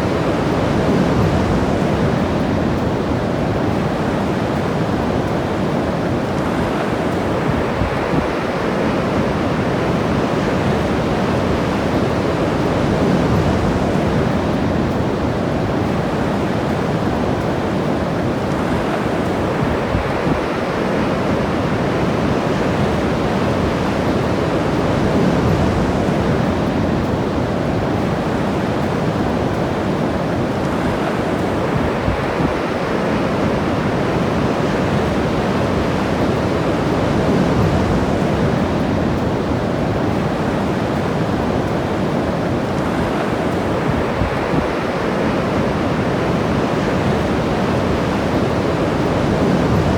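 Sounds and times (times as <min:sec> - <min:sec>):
ocean surf washing on shore: 0:00.0 - 0:49.9.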